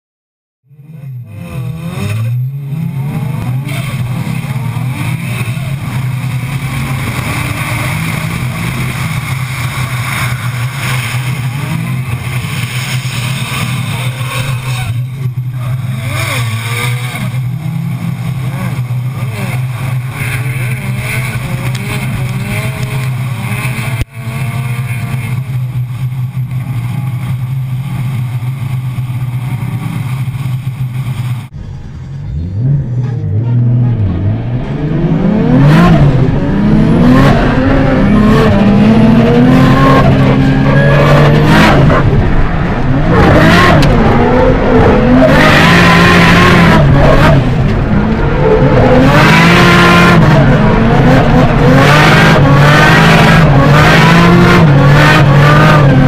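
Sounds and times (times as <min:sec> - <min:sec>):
car engine revving: 0:00.7 - 0:56.0.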